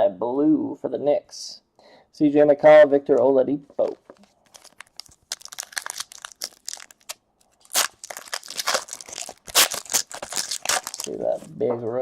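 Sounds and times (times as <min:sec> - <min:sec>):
wrapper crinkling: 0:03.9 - 0:11.5
wrapper ripping: 0:04.0 - 0:11.5.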